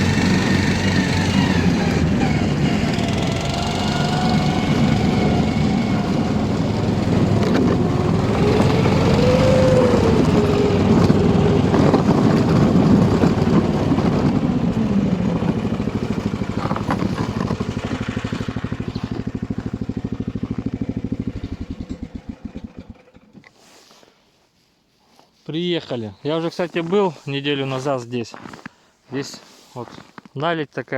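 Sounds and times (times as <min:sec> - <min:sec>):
engine running and idling: 0:00.0 - 0:23.5.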